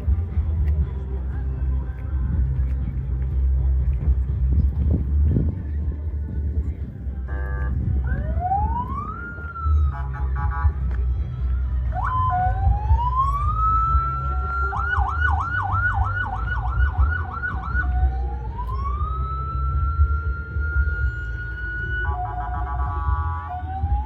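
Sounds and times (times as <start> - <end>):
steady low rumble: 0.0 - 24.0
electronic siren wail and yelp: 8.1 - 10.2, 12.0 - 24.0.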